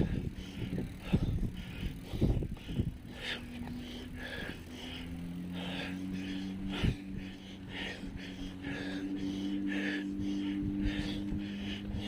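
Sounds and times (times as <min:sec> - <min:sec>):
wind on microphone: 0:00.0 - 0:04.5
bicycle riding bumps: 0:00.0 - 0:12.0
steady hum: 0:00.0 - 0:12.0.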